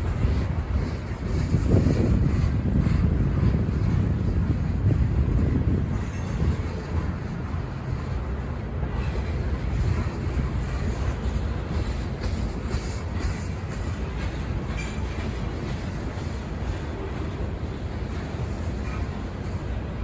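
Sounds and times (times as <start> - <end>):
freight train rumbling on rails: 0.0 - 20.0.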